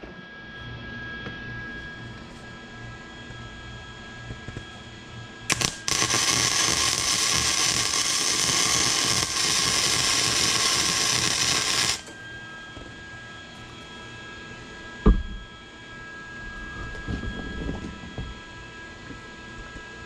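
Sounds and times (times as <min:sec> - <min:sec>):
welding hiss: 0:05.5 - 0:12.1
welding arc strikes: 0:05.5 - 0:12.2.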